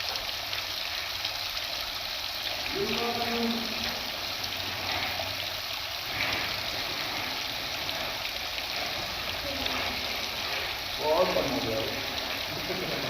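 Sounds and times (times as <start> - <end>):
water running from a tap: 0.0 - 13.0.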